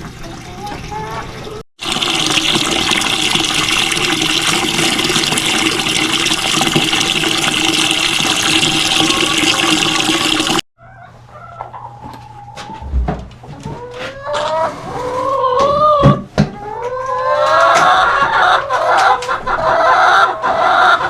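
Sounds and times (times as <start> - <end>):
water running into a bucket: 0.0 - 10.7.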